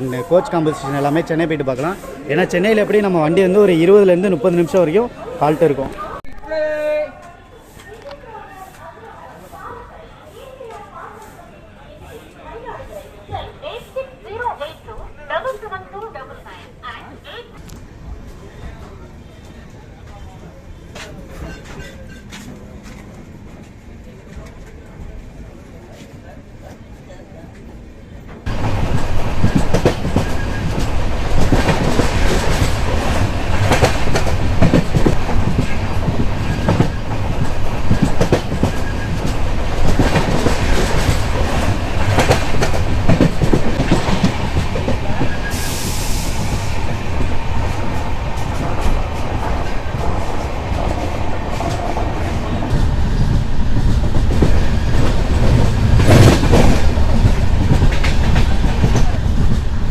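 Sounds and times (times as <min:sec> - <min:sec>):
train rumble: 0:12.6 - 0:59.9
rush of air: 0:28.5 - 0:58.4
short hiss: 0:45.5 - 0:46.7.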